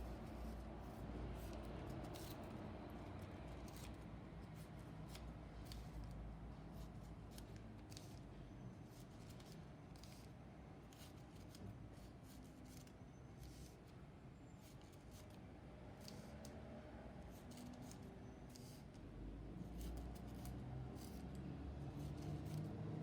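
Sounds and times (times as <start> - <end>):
scissors snipping paper: 19.7 - 23.0.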